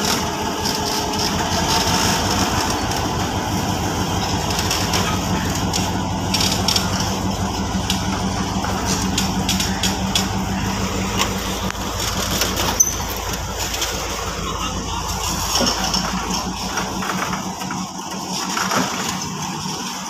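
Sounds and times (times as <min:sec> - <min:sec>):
clicks and clanks of wagons: 0:00.0 - 0:20.0
freight train rolling past: 0:00.0 - 0:20.0.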